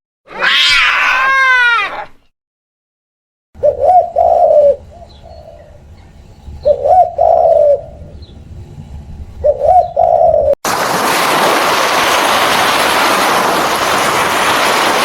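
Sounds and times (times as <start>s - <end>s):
pigeon cooing: 3.6s - 5.8s, 6.6s - 8.3s, 9.4s - 10.6s.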